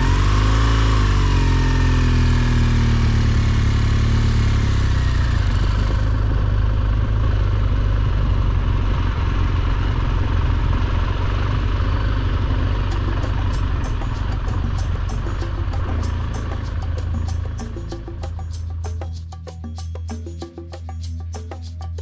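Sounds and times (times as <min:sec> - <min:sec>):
road noise: 0:00.0 - 0:20.1
motorcycle engine: 0:00.0 - 0:22.0.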